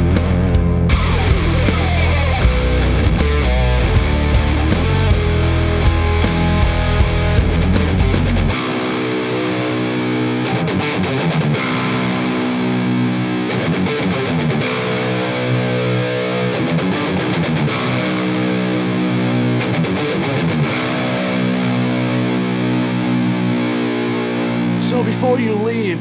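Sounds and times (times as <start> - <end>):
heavy low backing: 0.0 - 8.6
distorted electric guitar chords: 0.0 - 26.0.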